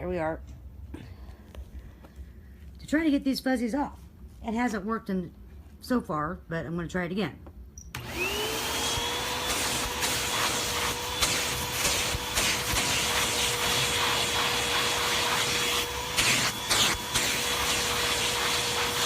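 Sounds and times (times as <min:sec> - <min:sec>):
vacuum cleaner motor running: 0:08.0 - 0:19.0.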